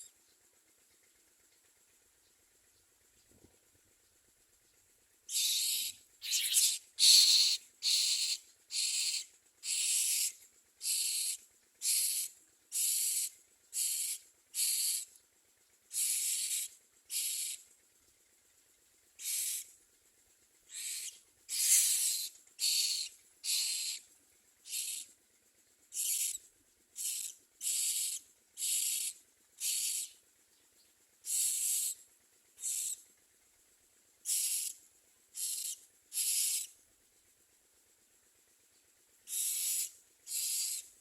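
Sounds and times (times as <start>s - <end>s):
nestlings hissing rasps: 5.3s - 15.1s, 15.9s - 17.6s, 19.2s - 19.6s, 20.7s - 24.0s, 24.7s - 25.0s, 25.9s - 26.4s, 27.0s - 30.1s, 31.3s - 32.0s, 34.2s - 34.8s, 35.4s - 36.7s, 39.3s - 40.8s.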